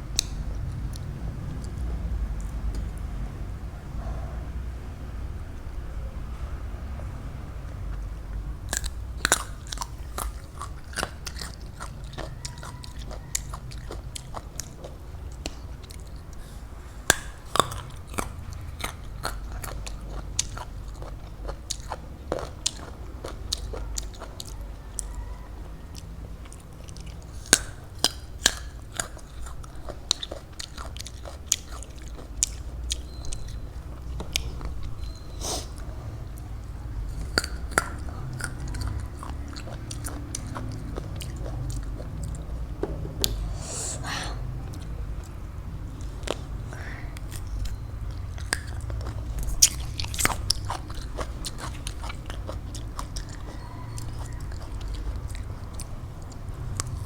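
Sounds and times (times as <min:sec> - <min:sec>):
biting and chewing fruit: 0:00.0 - 0:03.2, 0:07.7 - 0:57.0
steady low hum: 0:00.0 - 0:57.0
wet mouth clicks: 0:08.6 - 0:16.4, 0:17.0 - 0:20.7, 0:25.9 - 0:36.5, 0:37.1 - 0:57.0.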